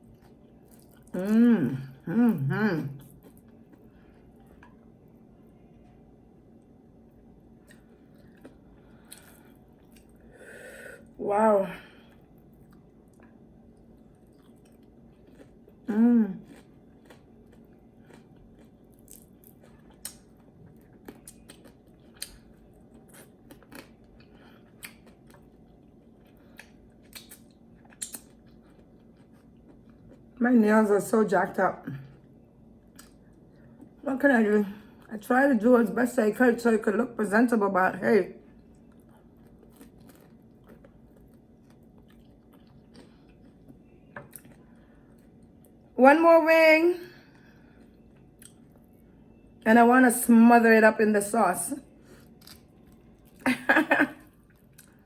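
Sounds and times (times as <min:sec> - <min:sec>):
chewing crispy chicken: 0:00.0 - 0:05.1, 0:07.5 - 0:10.3, 0:12.0 - 0:30.4, 0:38.4 - 0:45.9, 0:52.0 - 0:55.0.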